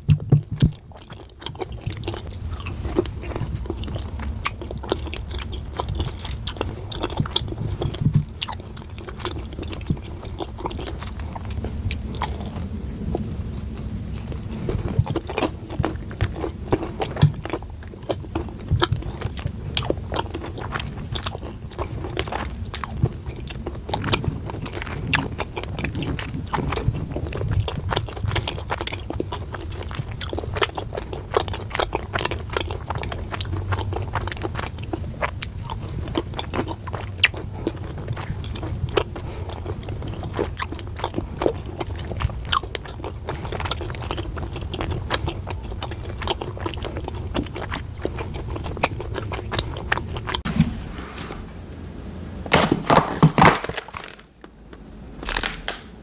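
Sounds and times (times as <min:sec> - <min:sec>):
chewing gummy candies: 0:00.0 - 0:50.5, 0:52.5 - 0:55.9
crackle: 0:52.6 - 0:54.6.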